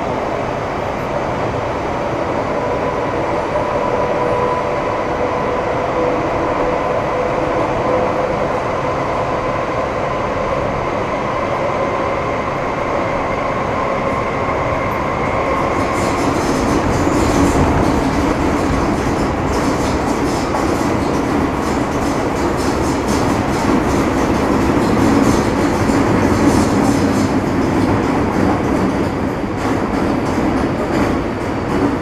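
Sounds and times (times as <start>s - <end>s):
train running noise: 0.0s - 32.0s
wheel and rail clatter: 14.8s - 32.0s.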